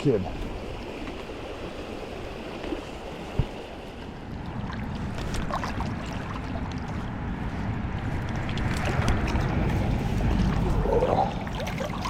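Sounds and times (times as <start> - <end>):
river water flowing: 0.0 - 12.0
wind buffeting microphone: 0.0 - 12.0
low rumble: 6.1 - 12.0.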